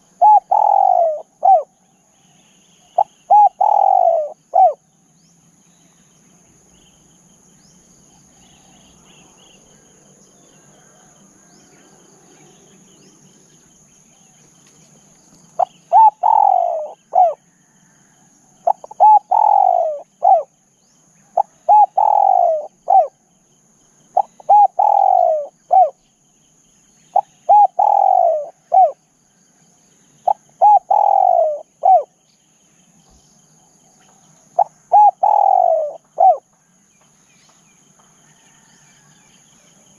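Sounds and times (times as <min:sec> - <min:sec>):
dove cooing: 0:00.0 - 0:01.8, 0:03.0 - 0:04.8, 0:15.6 - 0:17.8, 0:18.6 - 0:20.6, 0:21.3 - 0:23.2, 0:24.2 - 0:26.0, 0:27.1 - 0:29.0, 0:30.2 - 0:32.2, 0:34.6 - 0:36.5
faint high-pitched insect drone: 0:00.0 - 0:39.9.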